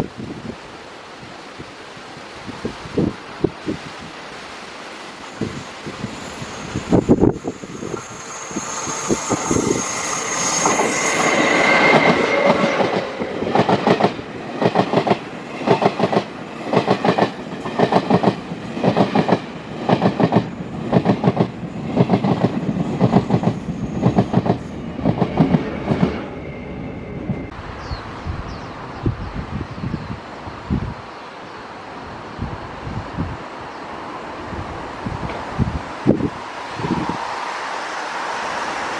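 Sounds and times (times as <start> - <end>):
passenger train passing: 0.0 - 38.9
high wheel squeal: 5.4 - 13.3.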